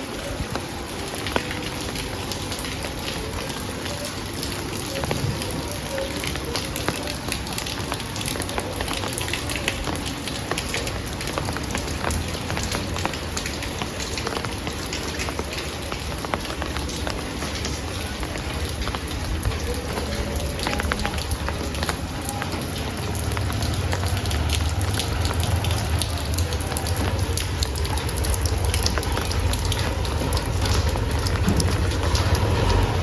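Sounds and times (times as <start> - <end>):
heavy rain falling: 0.0 - 33.0
raindrops ticking on a surface: 0.0 - 33.0.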